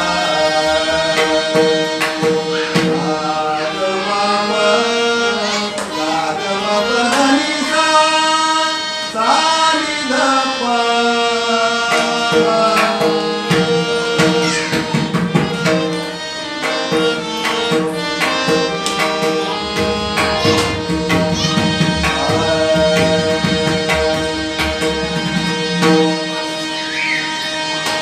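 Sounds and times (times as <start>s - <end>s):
person singing devotional song: 0.0s - 28.0s
sustained instrumental notes: 0.0s - 28.0s
tabla drumming: 0.1s - 3.3s, 11.9s - 26.8s.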